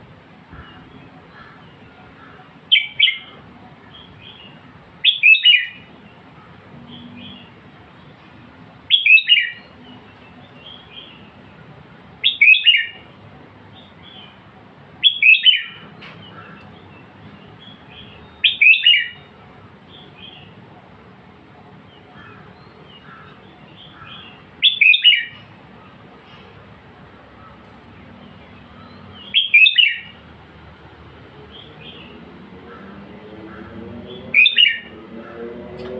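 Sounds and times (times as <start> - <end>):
bird warbling song: 4.0 - 5.9, 15.0 - 19.3, 21.9 - 26.0, 28.2 - 30.2, 33.5 - 35.4.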